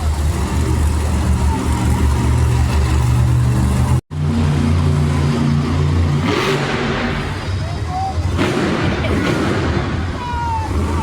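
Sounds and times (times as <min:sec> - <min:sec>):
truck engine idling loud: 0:00.0 - 0:06.2.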